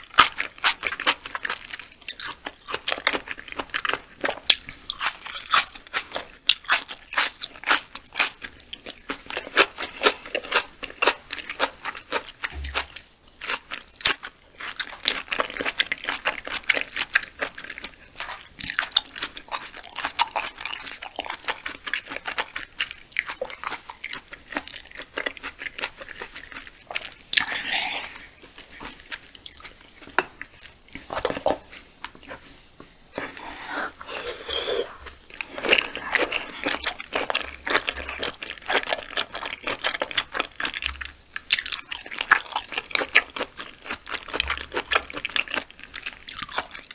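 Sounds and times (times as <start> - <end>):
crisp wet chewing crunches: 33.2 - 46.9.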